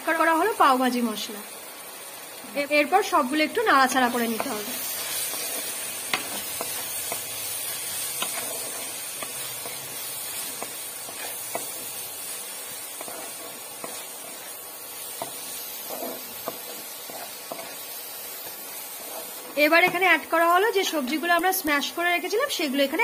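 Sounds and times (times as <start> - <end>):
food sizzling in hot oil: 0.0 - 23.0
wooden spatula scraping a pan: 3.9 - 20.1.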